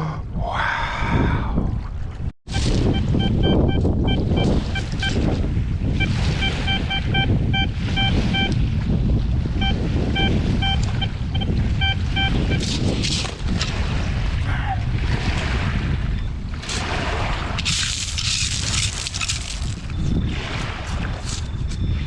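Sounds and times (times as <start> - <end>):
wind buffeting microphone: 0.0 - 22.0
metal detector short beeps: 2.5 - 5.2, 6.0 - 8.6, 9.6 - 12.7.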